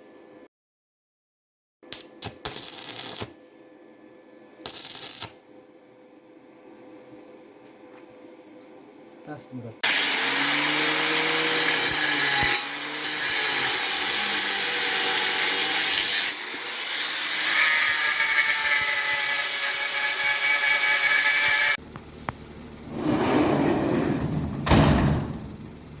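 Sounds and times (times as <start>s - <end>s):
power tool grinding metal: 2.0s - 3.3s, 9.8s - 21.8s.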